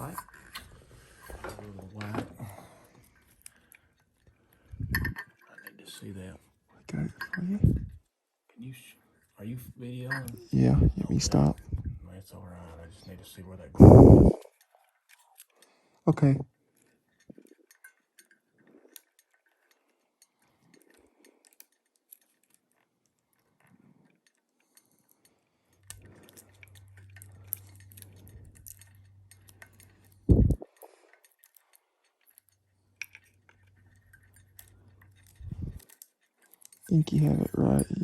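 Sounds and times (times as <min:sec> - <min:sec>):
metal parts clinking and rattling: 0:00.0 - 0:06.2, 0:16.7 - 0:38.0
low hum: 0:04.7 - 0:05.2, 0:07.6 - 0:08.0, 0:10.6 - 0:12.0, 0:13.8 - 0:14.5, 0:30.2 - 0:30.6.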